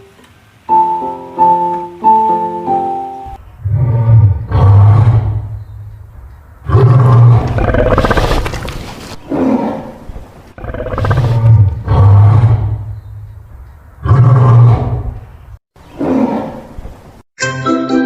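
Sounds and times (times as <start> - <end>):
lion roaring and grunting: 3.6 - 5.6, 6.6 - 13.0, 14.0 - 15.3, 15.9 - 17.0.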